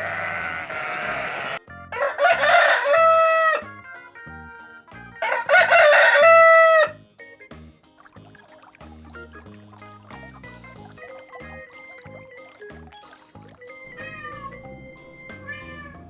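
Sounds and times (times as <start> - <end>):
rooster crowing: 0.3 - 3.6, 5.2 - 6.9.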